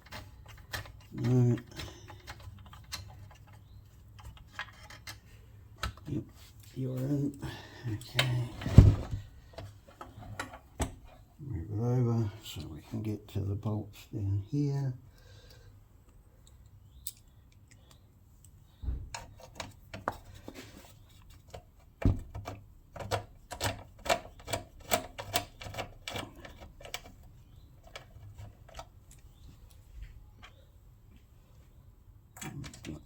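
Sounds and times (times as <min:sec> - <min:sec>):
hand tools clicking and knocking: 0:00.0 - 0:03.6, 0:21.4 - 0:28.9.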